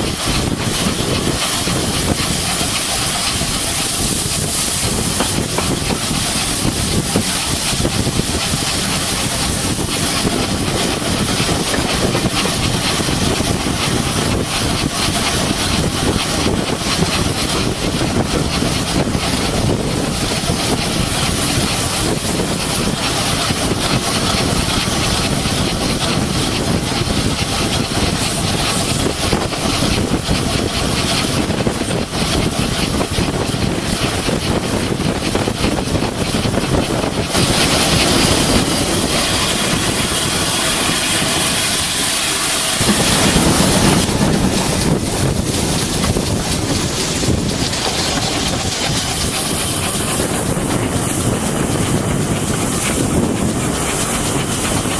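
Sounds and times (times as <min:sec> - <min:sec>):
train rumbling: 0:00.0 - 0:54.9.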